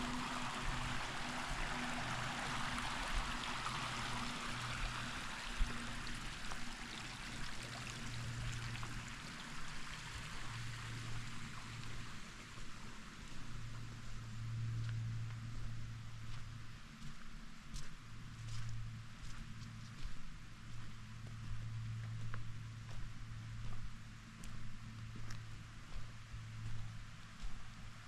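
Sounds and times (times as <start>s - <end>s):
creek water flowing over rocks: 0.0s - 16.0s.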